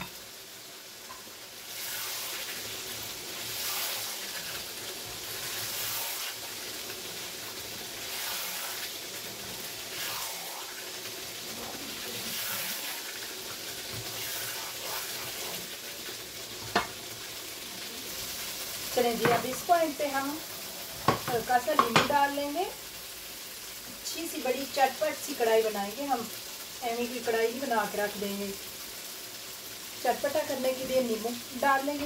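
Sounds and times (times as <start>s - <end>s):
food sizzling in a wok: 0.0s - 32.0s
spatula stirring in wok: 1.1s - 17.0s.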